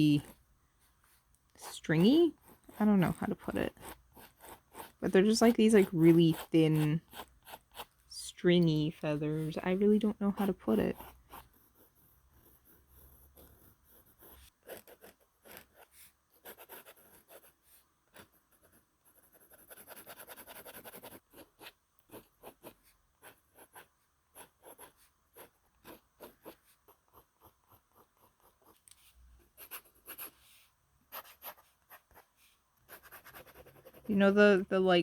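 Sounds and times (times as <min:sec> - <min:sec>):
pencil strokes on paper: 0:00.0 - 0:35.0.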